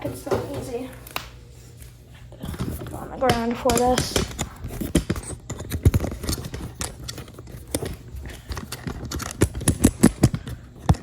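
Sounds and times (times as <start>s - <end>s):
hard parts clicking and rattling: 2.4s - 11.0s.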